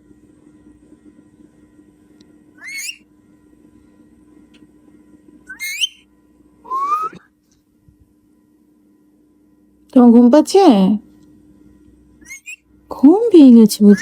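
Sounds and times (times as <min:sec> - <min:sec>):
parrot whistling: 0:02.6 - 0:03.0, 0:05.5 - 0:06.0, 0:06.7 - 0:07.2, 0:12.2 - 0:12.6.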